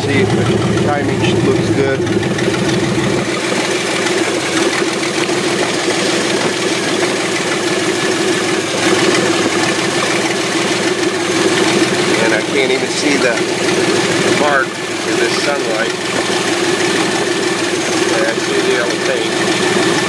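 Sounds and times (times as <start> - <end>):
unmuffled van engine idling: 0.0 - 20.0.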